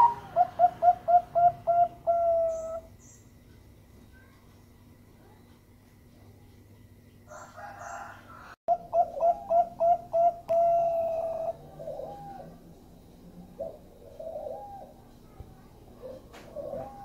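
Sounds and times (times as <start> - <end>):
dove cooing: 0.0 - 2.9, 7.3 - 12.7, 13.4 - 17.0.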